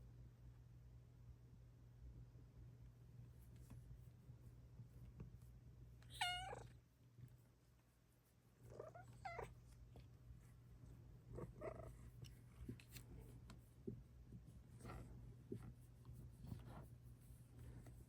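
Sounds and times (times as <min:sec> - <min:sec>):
cat meowing: 0:06.1 - 0:06.7.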